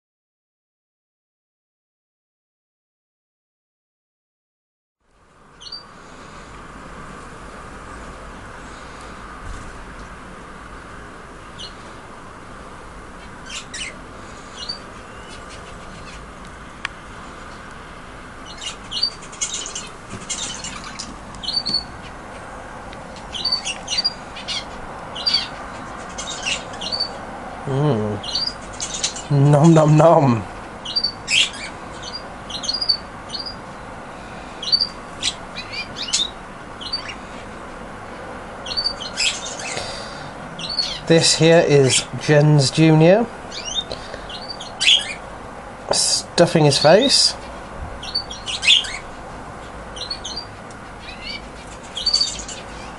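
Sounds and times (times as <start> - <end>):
steady background noise: 5.0 - 52.9
budgerigars chirping: 5.6 - 5.9, 11.5 - 11.8, 13.2 - 16.3, 18.4 - 22.2, 23.2 - 27.2, 28.2 - 29.9, 30.8 - 33.6, 34.6 - 37.5, 38.6 - 45.2, 45.9 - 52.9.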